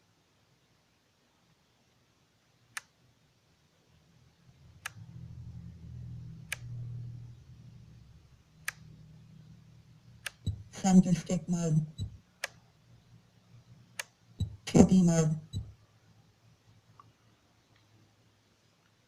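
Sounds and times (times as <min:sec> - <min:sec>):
low hum: 0:04.6 - 0:12.2.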